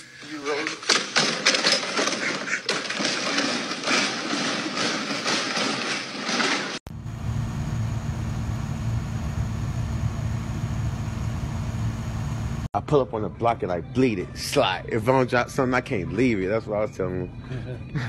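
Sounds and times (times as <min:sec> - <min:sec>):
loud clattering commotion: 0:00.5 - 0:06.8.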